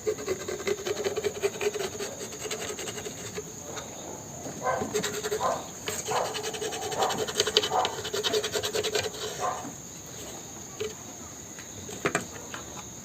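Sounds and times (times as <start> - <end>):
pencil scratching on plastic: 0.0 - 3.9, 4.6 - 9.7.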